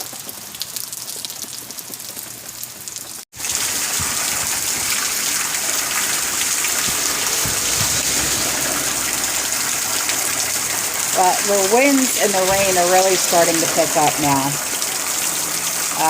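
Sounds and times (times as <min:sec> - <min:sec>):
heavy rain hiss: 0:03.4 - 0:16.0.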